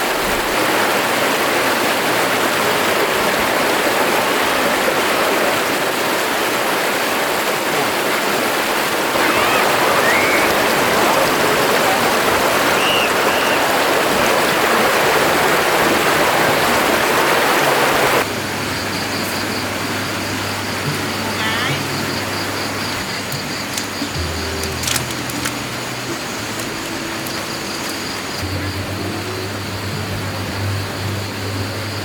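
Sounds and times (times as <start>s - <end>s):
stream water rushing: 0.0s - 32.0s.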